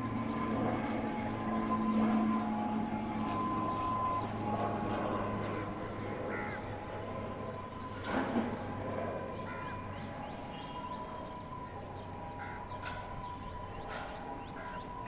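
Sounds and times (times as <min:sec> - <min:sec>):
turboprop engines droning: 0:00.0 - 0:15.0
crows cawing: 0:05.1 - 0:07.3, 0:09.3 - 0:09.8, 0:12.3 - 0:13.1, 0:13.9 - 0:14.8.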